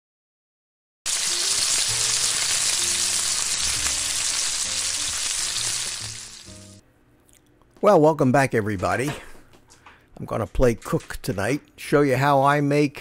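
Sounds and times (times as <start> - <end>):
food sizzling: 1.1 - 6.8.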